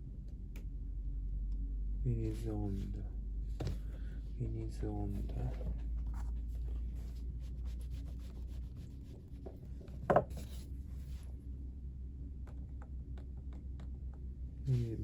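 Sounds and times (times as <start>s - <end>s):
steady low hum: 0.0s - 15.0s
faint rubbing: 6.2s - 11.3s.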